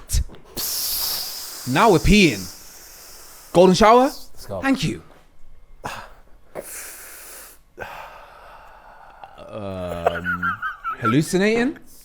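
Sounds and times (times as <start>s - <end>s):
man exhaling breathy hiss: 0.5s - 4.3s, 6.6s - 9.2s
man breathing softly: 0.6s - 3.6s, 5.8s - 9.4s.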